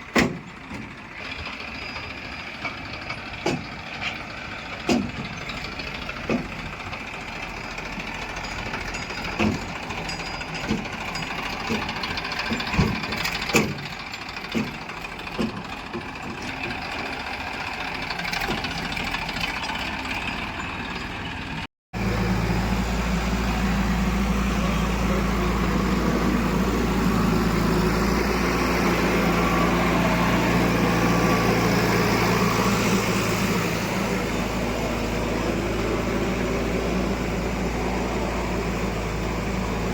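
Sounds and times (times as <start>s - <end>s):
heavy diesel machinery running: 0.0s - 39.9s
sharp knocks and clanks: 0.1s - 1.0s, 2.6s - 6.8s, 7.8s - 17.0s.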